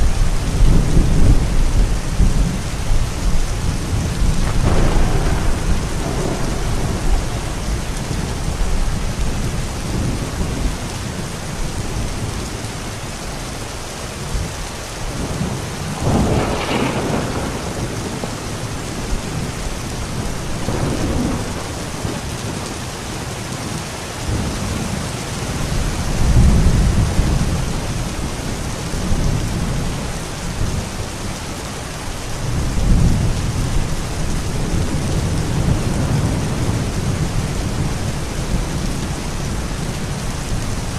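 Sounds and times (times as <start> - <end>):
rolling thunder: 0.0 - 12.8, 14.2 - 31.3
steady rain: 0.0 - 40.9.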